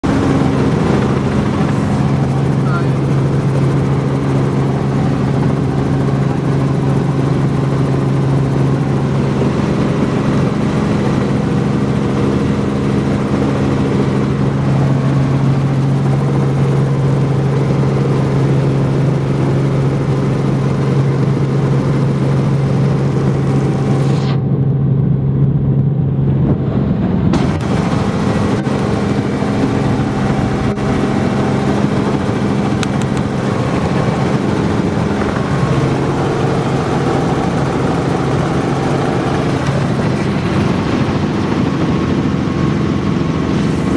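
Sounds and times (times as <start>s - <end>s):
helicopter engine and rotor drone: 0.0s - 43.9s.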